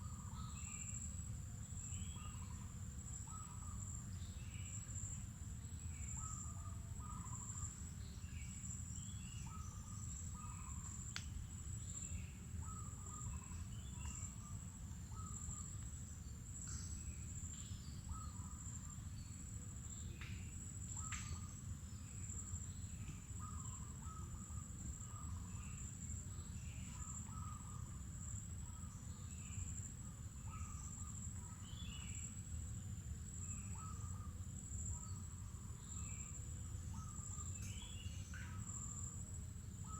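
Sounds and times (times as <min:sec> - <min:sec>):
insects droning: 0:00.0 - 0:39.9
faint sharp clicks: 0:11.1 - 0:11.3.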